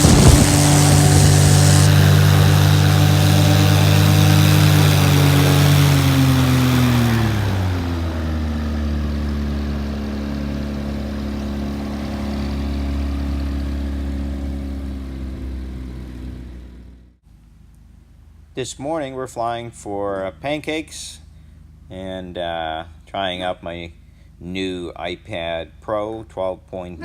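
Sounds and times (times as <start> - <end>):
aircraft engine running: 0.0 - 17.2.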